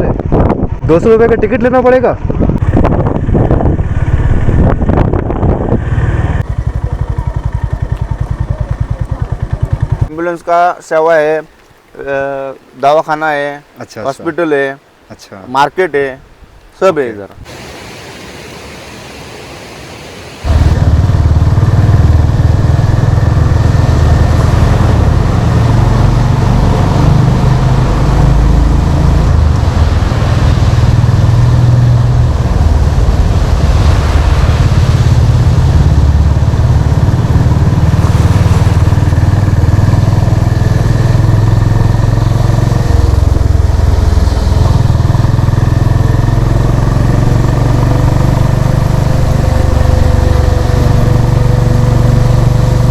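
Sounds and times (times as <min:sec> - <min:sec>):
motorcycle engine and exhaust: 0:02.2 - 0:10.1, 0:20.4 - 0:52.9.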